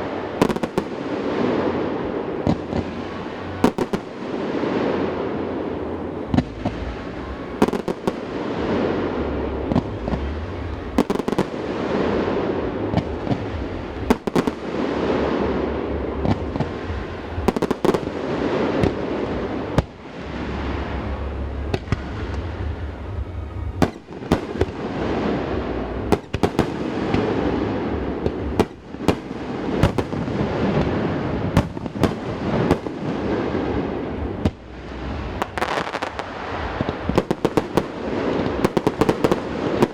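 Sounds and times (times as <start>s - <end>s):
firework shell bursts and crackling: 23.8s - 39.9s.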